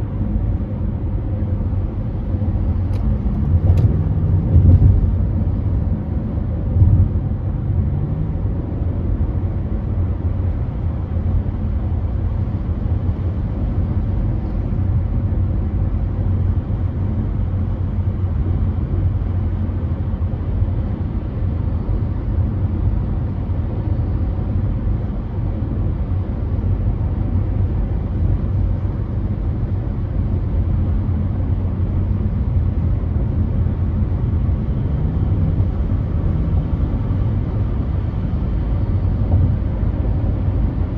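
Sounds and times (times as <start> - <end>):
car road and engine rumble: 0.0 - 40.9.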